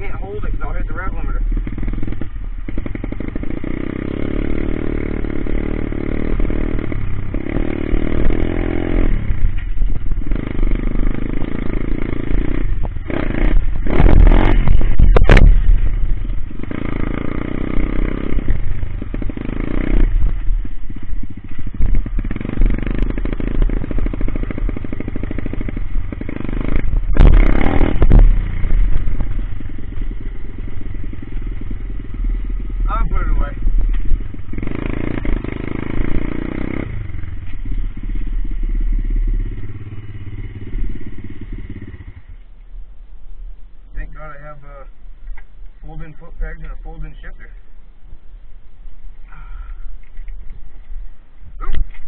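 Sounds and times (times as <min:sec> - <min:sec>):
motorbike engine revving: 0:00.0 - 0:42.5
sharp engine crack: 0:10.7 - 0:38.6.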